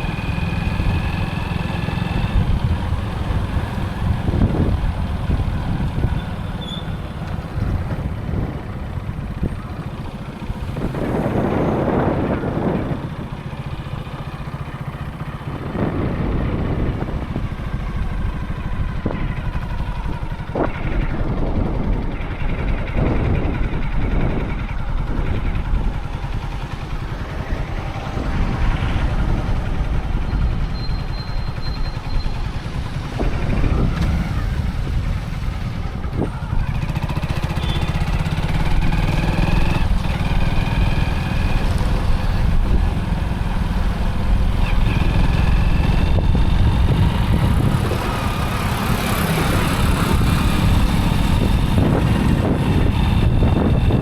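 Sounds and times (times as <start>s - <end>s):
motorcycle engine running: 0.0s - 54.0s
wind and road noise: 0.0s - 54.0s
high tones from traffic: 5.9s - 7.7s, 27.3s - 34.8s, 36.1s - 38.4s.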